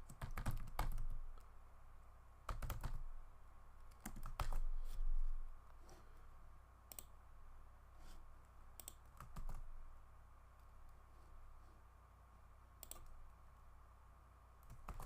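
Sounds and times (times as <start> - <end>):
steady low hum: 0.0 - 15.0
faint keyboard keystrokes: 3.9 - 5.0, 12.8 - 13.2.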